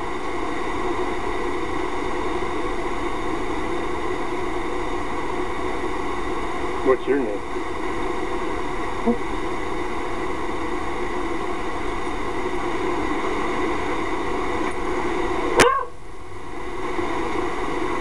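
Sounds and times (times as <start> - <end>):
dog yelp: 15.6 - 16.0.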